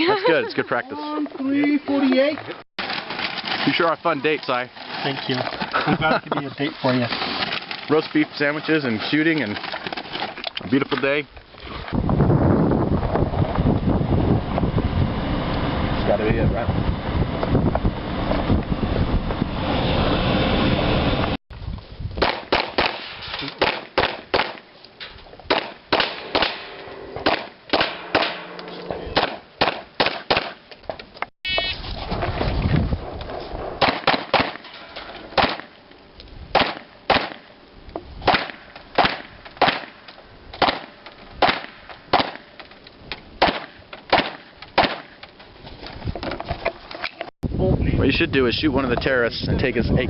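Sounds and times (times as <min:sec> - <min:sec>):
handgun shots: 0:22.2 - 0:24.6, 0:25.5 - 0:28.6, 0:29.2 - 0:30.6, 0:33.8 - 0:34.6, 0:35.4 - 0:35.7, 0:36.6 - 0:37.5, 0:38.2 - 0:40.0, 0:40.6 - 0:42.5, 0:43.4 - 0:45.1.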